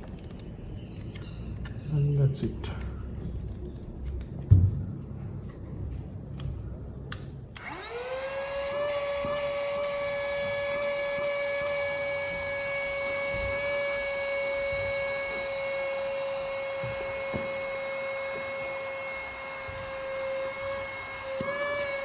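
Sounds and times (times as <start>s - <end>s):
mini vacuum cleaner whine: 7.6s - 22.0s.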